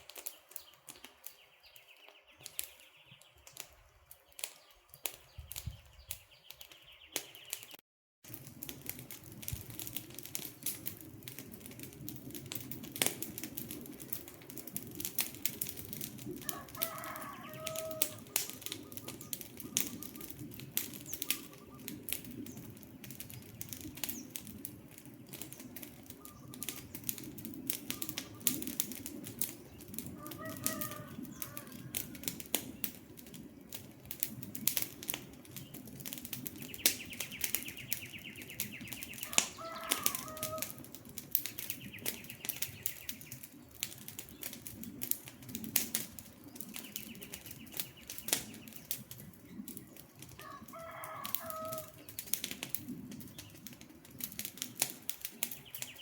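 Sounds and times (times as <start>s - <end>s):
wood fire crackling: 0.0s - 56.0s
bird calling: 16.5s - 20.4s, 21.0s - 22.0s, 26.1s - 27.0s, 36.6s - 40.8s.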